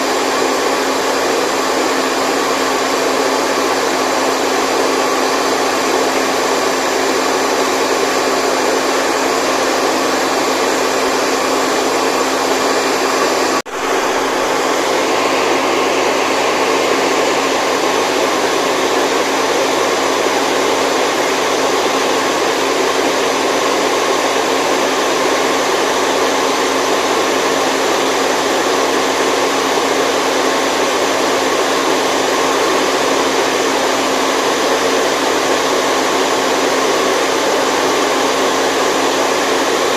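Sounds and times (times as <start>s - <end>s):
loud rushing white noise hiss: 1.4s - 23.2s.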